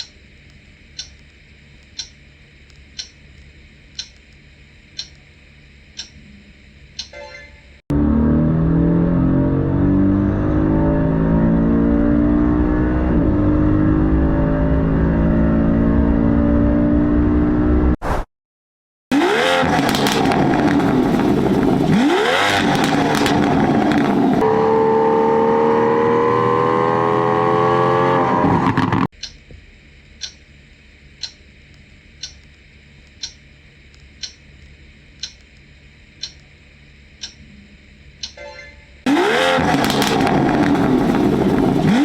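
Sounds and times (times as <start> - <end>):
car engine accelerating: 7.9 - 18.0, 19.1 - 29.1, 39.0 - 42.0
car engine revving: 7.9 - 18.0, 19.1 - 29.1, 39.1 - 42.0.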